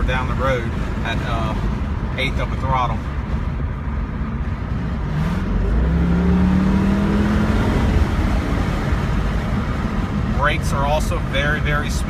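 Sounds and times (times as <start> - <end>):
road noise: 0.0 - 12.0
car engine accelerating: 3.0 - 12.0.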